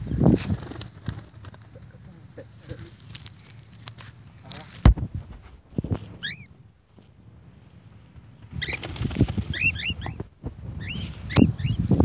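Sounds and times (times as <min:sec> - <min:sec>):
rustling and thumping handling noise: 0:03.1 - 0:06.2
bird squeaky chirps: 0:06.2 - 0:06.5, 0:09.5 - 0:10.2, 0:10.8 - 0:11.9.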